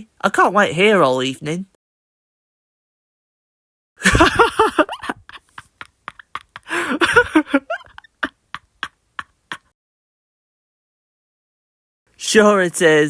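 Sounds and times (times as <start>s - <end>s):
man laughing: 4.0s - 9.7s.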